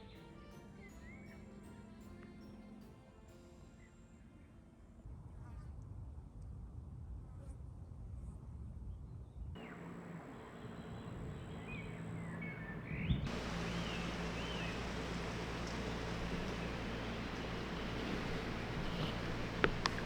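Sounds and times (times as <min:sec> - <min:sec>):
faint bird chirps: 0:09.6 - 0:20.0
low outdoor rumble: 0:09.6 - 0:20.0.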